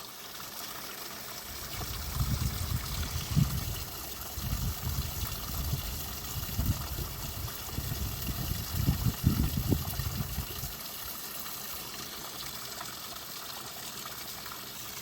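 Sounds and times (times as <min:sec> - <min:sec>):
small waterfall rushing: 0:00.0 - 0:15.0.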